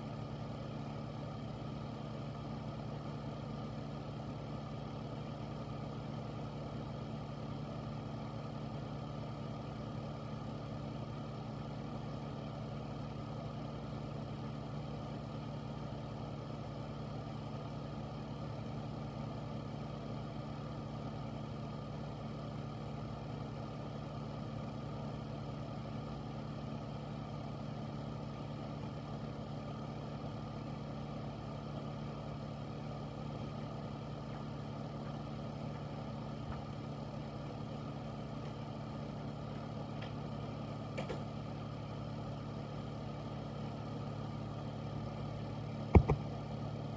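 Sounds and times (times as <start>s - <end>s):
air filter fan humming: 0.0s - 46.9s.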